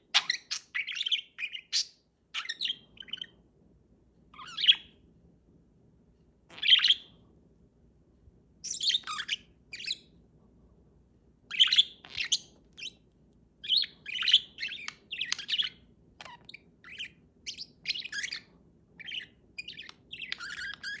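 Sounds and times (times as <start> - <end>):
parakeet chirping: 0.1 - 3.4, 4.3 - 4.9, 6.5 - 7.1, 8.6 - 10.1, 11.5 - 13.0, 13.6 - 21.0.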